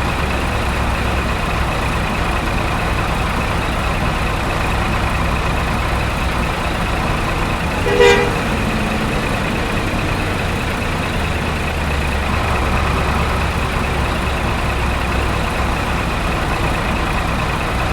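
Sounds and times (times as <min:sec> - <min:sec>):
truck engine running: 0:00.0 - 0:17.9
short horn toot: 0:07.8 - 0:08.6.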